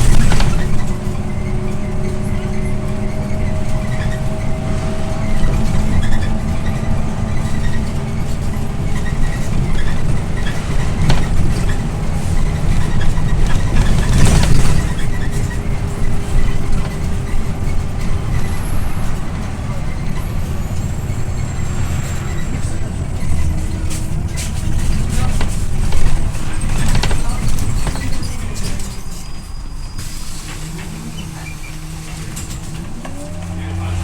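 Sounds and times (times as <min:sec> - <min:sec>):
bus engine and road rumble: 0:00.0 - 0:34.0
bus rattling over bumps: 0:00.0 - 0:34.0
faint engine whine: 0:29.6 - 0:34.0.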